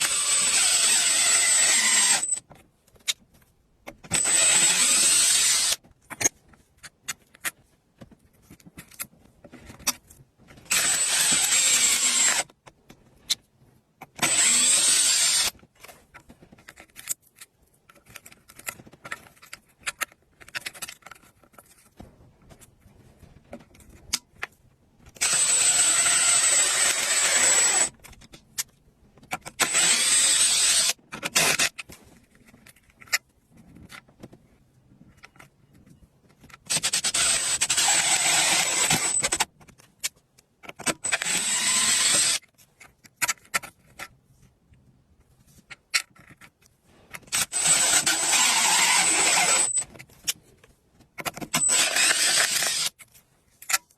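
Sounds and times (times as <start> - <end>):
power tool whining: 0.0 - 2.4, 4.1 - 5.8, 10.7 - 12.5, 14.2 - 15.5, 25.2 - 28.0, 29.6 - 31.7, 36.7 - 39.4, 41.0 - 42.4, 47.3 - 49.9, 51.5 - 53.0.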